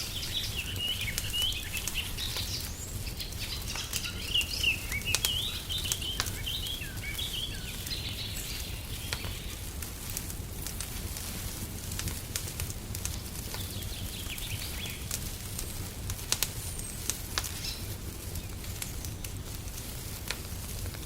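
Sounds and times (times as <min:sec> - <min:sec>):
small birds chirping: 0:00.0 - 0:09.8, 0:13.1 - 0:19.4
fire crackling and popping: 0:00.0 - 0:21.0.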